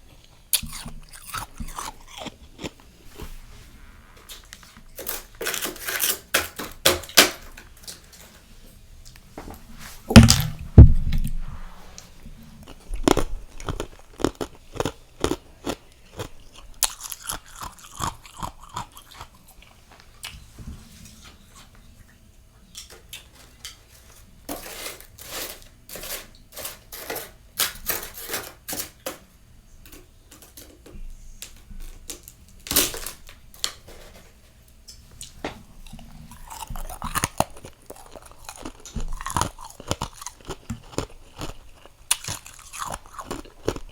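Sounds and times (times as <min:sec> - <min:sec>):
chewing and crunching frost: 0:00.0 - 0:03.4, 0:12.4 - 0:20.4, 0:35.2 - 0:43.9
loud knock: 0:10.2 - 0:11.2.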